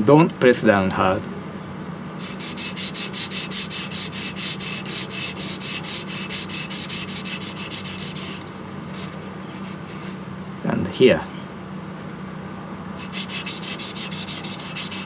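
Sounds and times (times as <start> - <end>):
blade rubbing on whetstone: 2.2 - 10.2, 13.0 - 15.0.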